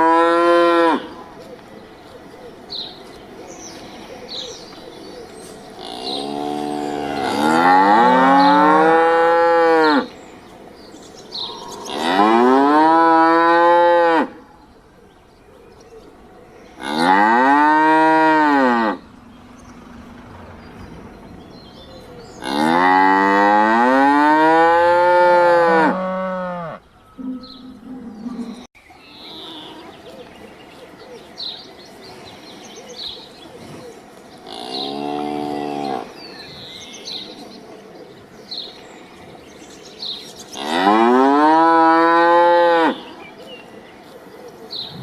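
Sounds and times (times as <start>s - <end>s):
cow mooing: 0.0s - 1.2s, 5.8s - 10.1s, 11.4s - 14.4s, 16.8s - 21.0s, 22.2s - 28.7s, 40.6s - 43.1s.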